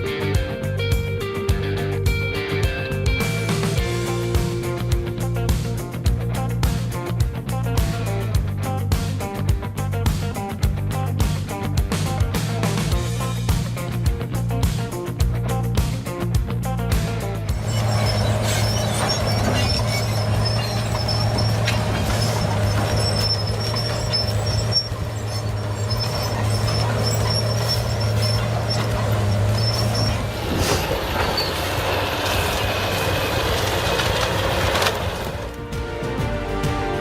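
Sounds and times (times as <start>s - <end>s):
rattling grinding noise: 17.0s - 35.6s
low machinery hum: 17.1s - 35.6s
faint high squeals: 17.5s - 32.1s.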